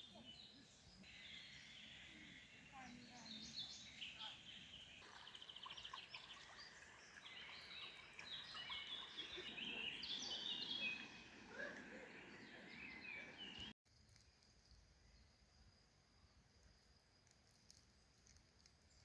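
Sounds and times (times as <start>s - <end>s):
songbirds singing: 0.0s - 13.8s.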